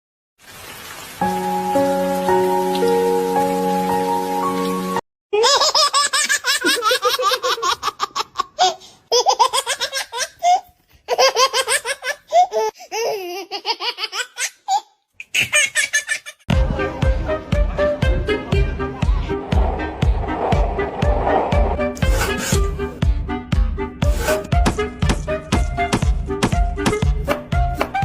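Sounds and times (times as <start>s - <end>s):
high-pitched laughter: 5.4s - 16.4s
music with a beat: 16.5s - 20.7s, 24.5s - 28.0s
held music notes: 16.5s - 28.0s.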